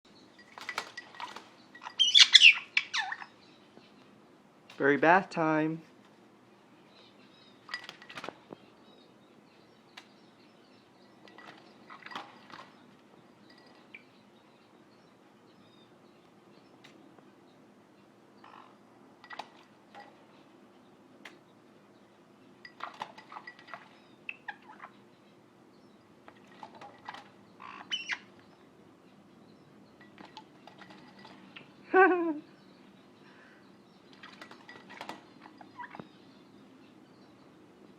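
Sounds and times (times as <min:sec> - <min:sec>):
parrot chirps and squeaks: 0:01.7 - 0:03.4, 0:27.6 - 0:28.3.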